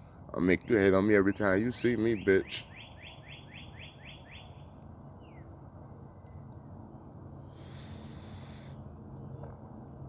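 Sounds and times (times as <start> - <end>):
bird trilling chirps: 2.1 - 5.5.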